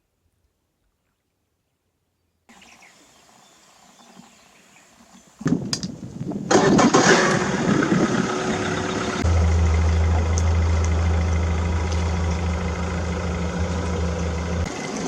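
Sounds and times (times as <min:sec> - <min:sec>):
boat engine cranking and running: 0:06.5 - 0:15.0.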